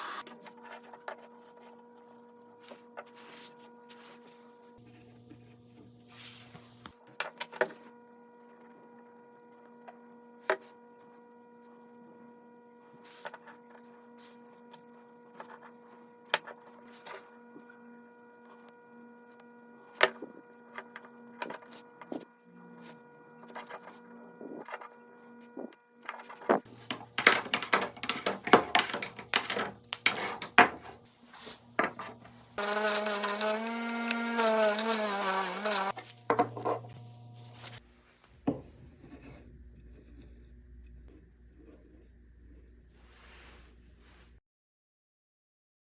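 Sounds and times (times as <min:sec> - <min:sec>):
wooden pieces knocking and clicking: 0:26.1 - 0:31.0.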